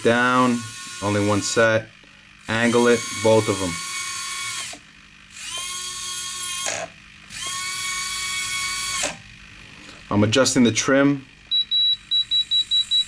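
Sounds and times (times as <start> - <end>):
toy electric motors whining: 0.0 - 1.8, 2.4 - 9.3.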